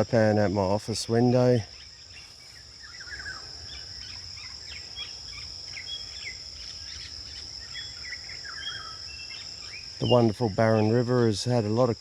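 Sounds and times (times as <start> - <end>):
insect drone: 0.0 - 12.0
bird chirps and calls: 0.3 - 11.3.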